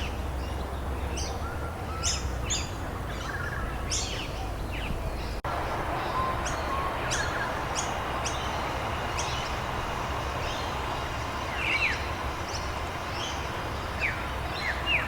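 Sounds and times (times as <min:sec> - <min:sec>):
small birds chirping: 0:00.0 - 0:15.0
steady rain falling: 0:05.4 - 0:15.0.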